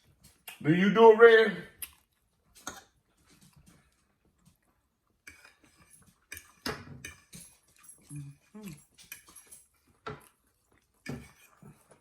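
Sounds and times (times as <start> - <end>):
chewing: 0.1 - 0.6, 1.8 - 12.0
small eating clicks: 1.8 - 4.6.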